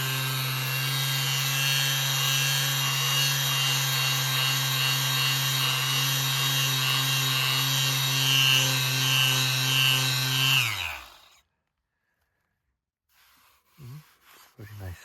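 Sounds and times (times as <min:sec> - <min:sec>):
motor winding down: 0:00.0 - 0:11.4
orbital sander running: 0:00.0 - 0:11.4.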